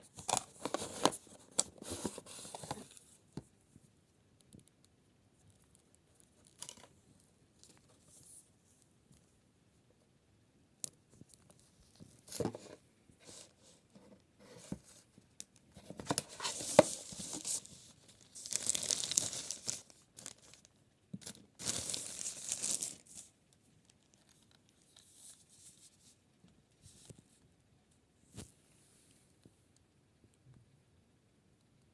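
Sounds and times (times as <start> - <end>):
tearing and crinkling: 16.1 - 20.6, 21.2 - 23.3.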